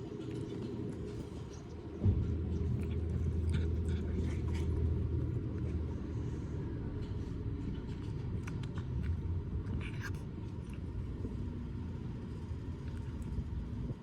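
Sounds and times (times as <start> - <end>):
cat chewing bone: 2.2 - 6.1, 7.0 - 11.5.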